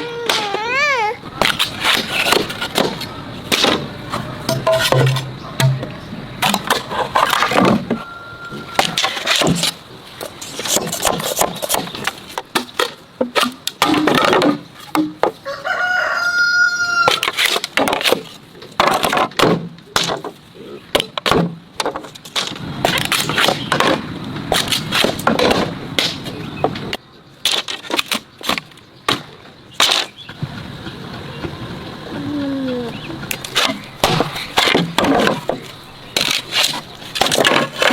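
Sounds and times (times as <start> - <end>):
rooster crowing: 8.0 - 8.8, 15.4 - 17.3.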